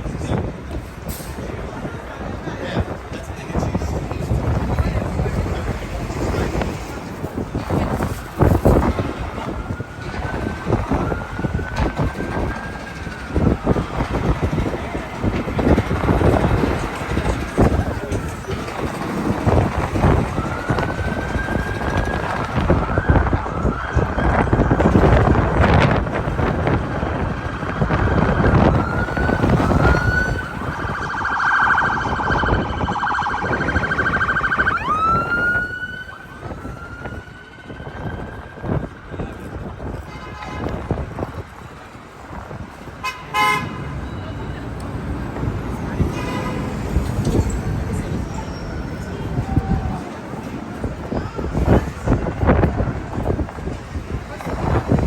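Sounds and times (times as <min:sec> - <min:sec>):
city street traffic: 0:00.0 - 0:55.0
wind buffeting microphone: 0:00.0 - 0:55.0
distant emergency siren wailing: 0:05.4 - 0:40.0.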